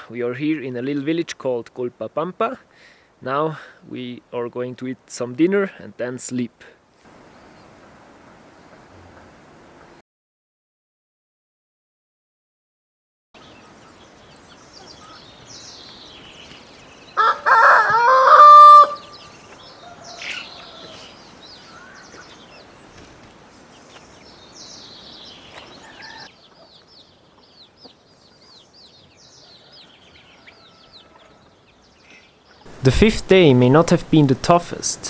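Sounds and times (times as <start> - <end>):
small birds chirping: 13.4 - 35.0
rooster crowing: 17.2 - 21.1, 29.5 - 31.5.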